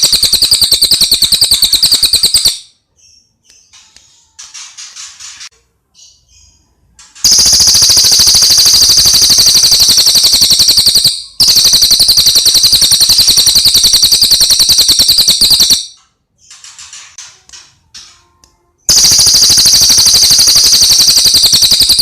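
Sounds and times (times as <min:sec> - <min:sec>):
bird rattling trills: 0:00.0 - 0:02.6, 0:07.2 - 0:15.8, 0:18.9 - 0:22.0.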